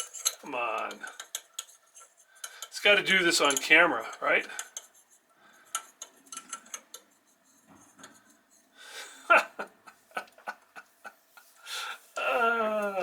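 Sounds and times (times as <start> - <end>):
person groaning: 12.2 - 13.0.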